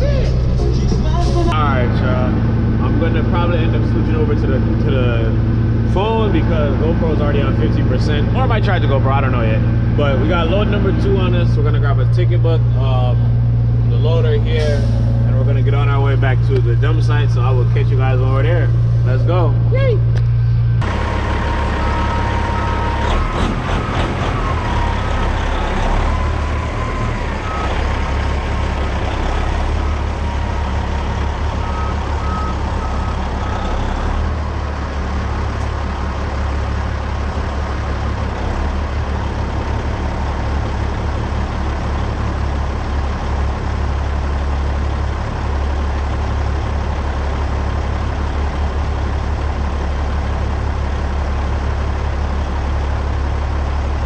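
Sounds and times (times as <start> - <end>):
diesel truck engine running: 0.0 - 54.0
backup alarm beeping: 31.3 - 33.6.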